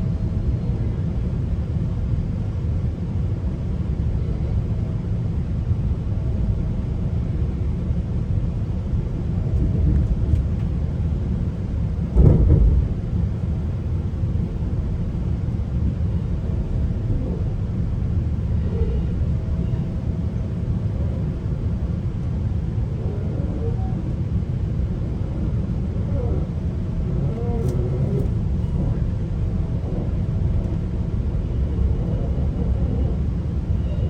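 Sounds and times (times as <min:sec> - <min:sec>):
train rumbling on rails: 0:00.0 - 0:34.0
heavy thump: 0:12.1 - 0:13.1.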